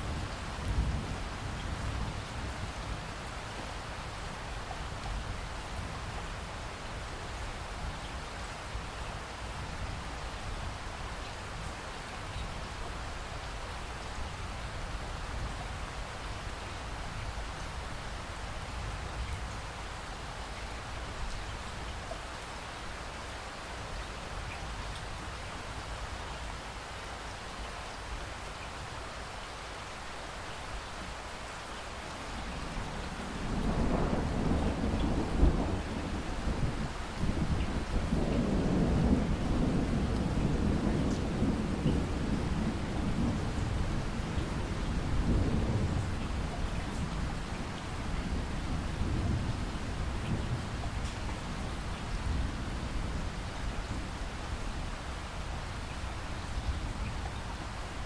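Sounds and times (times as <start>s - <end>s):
low rumble of thunder: 0.0s - 8.9s, 32.1s - 58.0s
steady rain falling: 0.0s - 58.0s.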